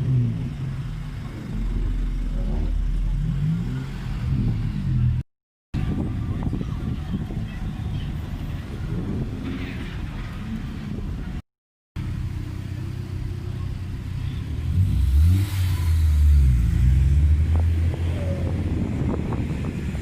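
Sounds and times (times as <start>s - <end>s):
car engine revving: 0.0s - 5.2s, 13.7s - 20.0s.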